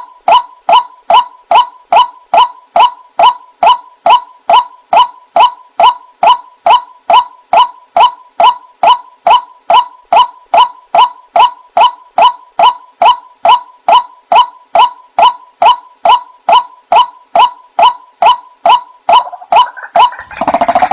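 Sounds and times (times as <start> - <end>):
waterhen calling: 19.1 - 20.9.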